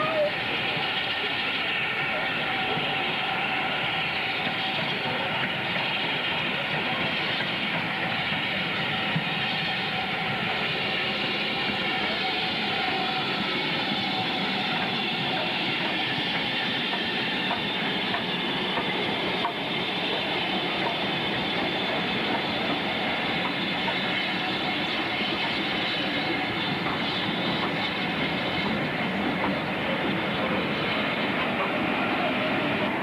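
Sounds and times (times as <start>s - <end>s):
train rumbling: 0.0s - 33.0s
train wheels clicking: 10.5s - 33.0s.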